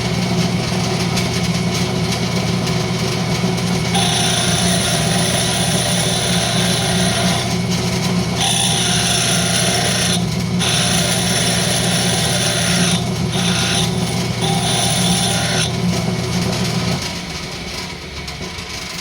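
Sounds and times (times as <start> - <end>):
lathe motor hum: 0.0 - 19.0
lathe spinning down: 0.0 - 19.0
lathe tool hissing scrape: 3.8 - 17.0.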